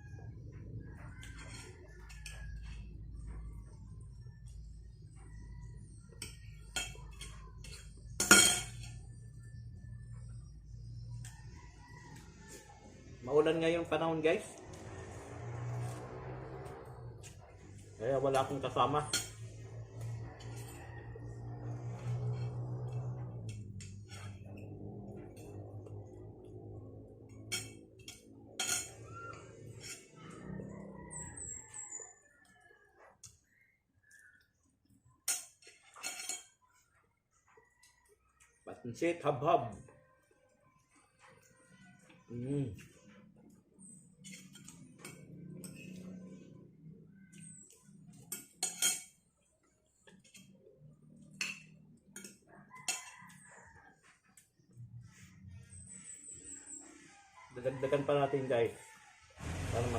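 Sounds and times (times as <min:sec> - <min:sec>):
utensils clinking against a dish: 0:01.2 - 0:03.0, 0:06.1 - 0:09.3, 0:15.8 - 0:25.8, 0:27.2 - 0:30.9, 0:35.2 - 0:36.6, 0:44.0 - 0:46.6, 0:47.3 - 0:49.3, 0:51.2 - 0:53.4
cutlery clinking on plate: 0:06.2 - 0:09.0, 0:27.4 - 0:29.0, 0:35.2 - 0:36.6, 0:48.1 - 0:49.2, 0:51.3 - 0:53.4.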